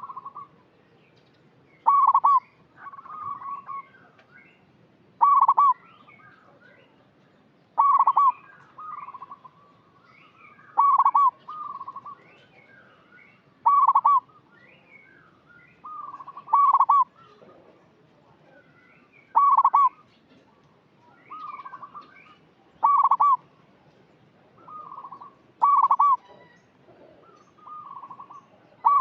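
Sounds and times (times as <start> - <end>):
dove cooing: 0.0 - 0.5, 1.8 - 3.9, 5.2 - 5.8, 7.8 - 9.6, 10.7 - 12.2, 13.6 - 14.3, 15.8 - 17.8, 19.4 - 20.0, 22.8 - 23.5, 24.6 - 29.0.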